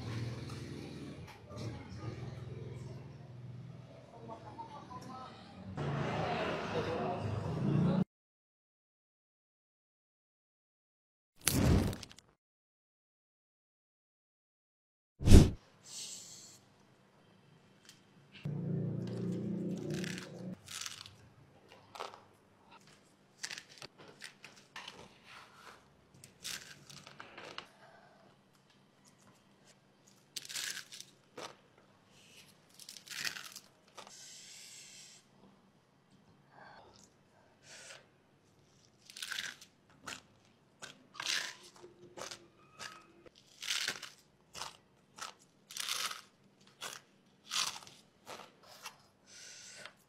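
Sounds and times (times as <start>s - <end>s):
crunching noodles: 19.1s - 25.1s, 26.2s - 27.7s, 30.0s - 31.6s, 32.2s - 34.2s, 38.6s - 49.1s
quiet chewing: 39.9s - 43.4s.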